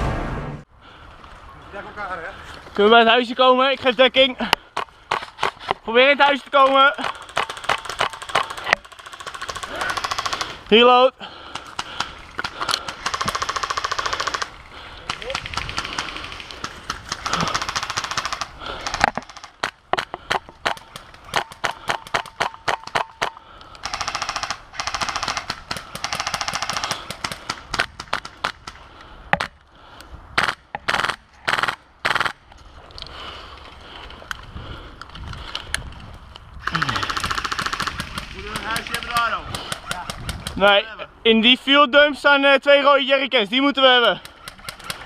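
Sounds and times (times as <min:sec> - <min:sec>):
airsoft gun full-auto bursts: 0:07.2 - 0:10.6, 0:12.8 - 0:14.6, 0:15.2 - 0:19.7, 0:21.4 - 0:28.5, 0:30.4 - 0:32.4, 0:36.6 - 0:40.5.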